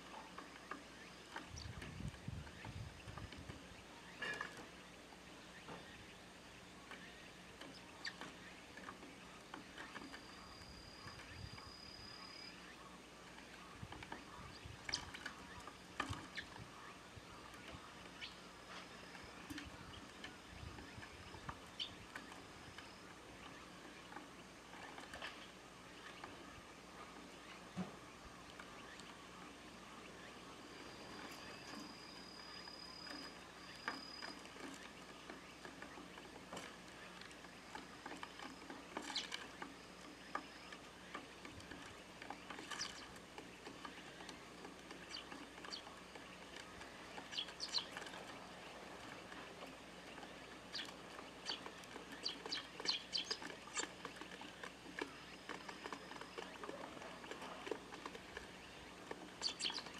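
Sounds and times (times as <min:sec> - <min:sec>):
birds pecking ticks: 0:00.0 - 0:59.9
sparrows chirping: 0:09.2 - 0:26.4, 0:39.0 - 0:40.8, 0:42.6 - 0:44.2, 0:44.9 - 0:49.4, 0:50.2 - 0:59.9.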